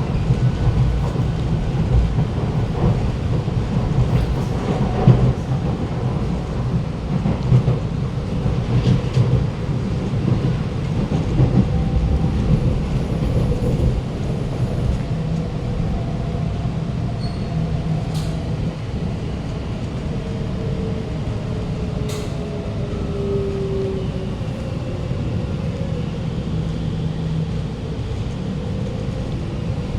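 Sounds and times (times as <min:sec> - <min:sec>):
metro car running rumble: 0:00.0 - 0:29.9.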